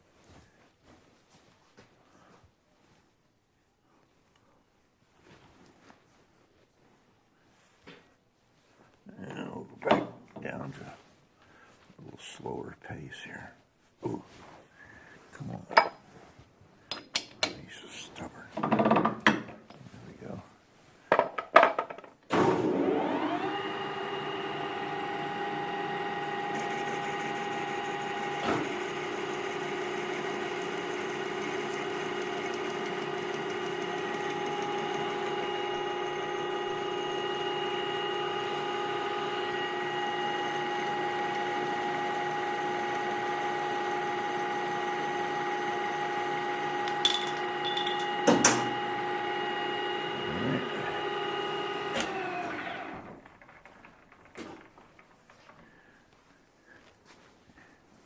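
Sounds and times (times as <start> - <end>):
metal lathe whining: 22.4 - 54.6.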